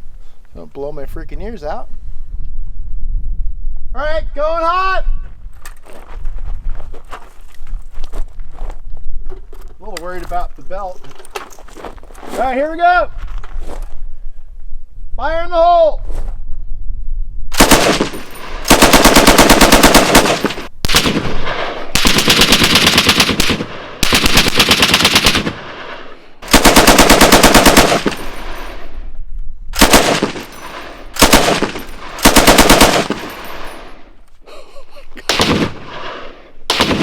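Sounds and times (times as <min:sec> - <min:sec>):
machine gun firing bursts: 0:17.6 - 0:21.3, 0:21.9 - 0:28.6, 0:29.8 - 0:33.9, 0:35.3 - 0:37.0.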